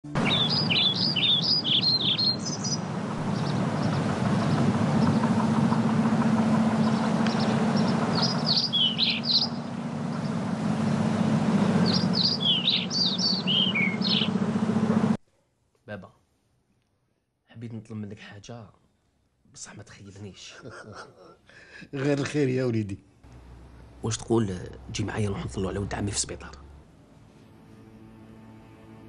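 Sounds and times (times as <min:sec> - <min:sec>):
low background hum: 0:00.1 - 0:15.2
birds chirping high whistles: 0:00.2 - 0:14.5.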